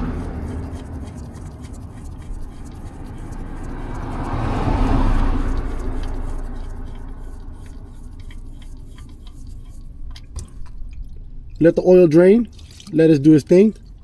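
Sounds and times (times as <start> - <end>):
oil pouring into a drain pan: 6.0 - 14.0.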